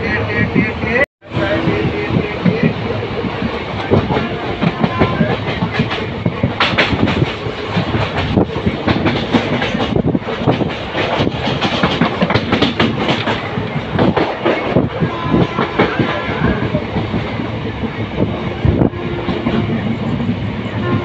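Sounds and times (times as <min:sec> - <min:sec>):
train running noise: 0:00.0 - 0:21.0
train wheels clattering over rail joints: 0:02.4 - 0:21.0.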